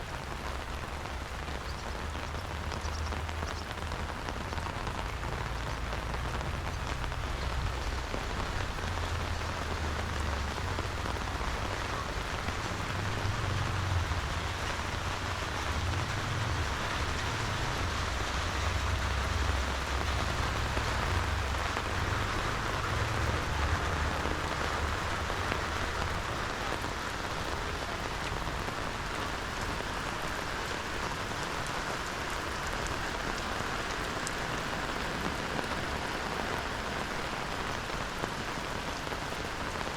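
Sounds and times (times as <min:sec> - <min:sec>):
steady rain falling: 0:00.0 - 0:39.9
low uneven rumble: 0:05.0 - 0:30.1.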